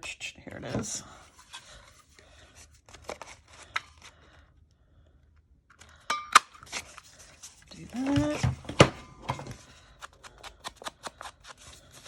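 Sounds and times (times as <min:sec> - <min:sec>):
paper tags rustling: 0:06.6 - 0:12.0.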